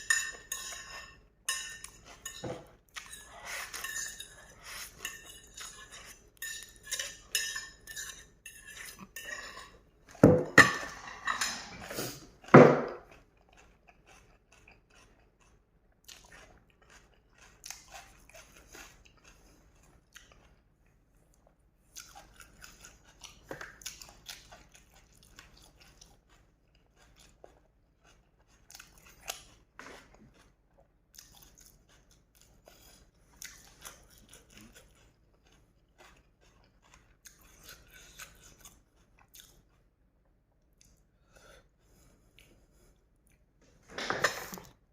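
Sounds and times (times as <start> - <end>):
chewing: 0.0 - 10.2, 10.9 - 43.5
cutlery clinking against a bowl: 0.0 - 11.9.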